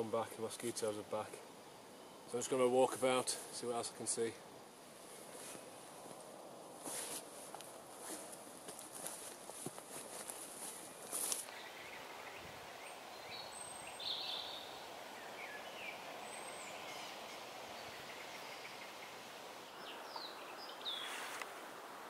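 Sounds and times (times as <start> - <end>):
background hiss: 0.0 - 22.0
rustle: 0.0 - 22.0
birds chirping and whistling: 11.5 - 19.2, 19.8 - 21.4.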